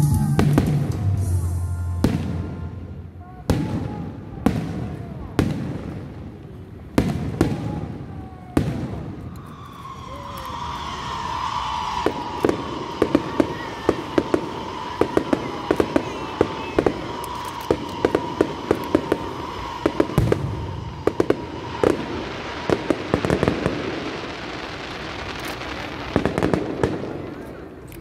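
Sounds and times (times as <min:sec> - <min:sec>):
steady high tone: 0:00.0 - 0:03.2
fireworks cracking pops: 0:03.5 - 0:28.0
deep firework boom: 0:07.0 - 0:24.4.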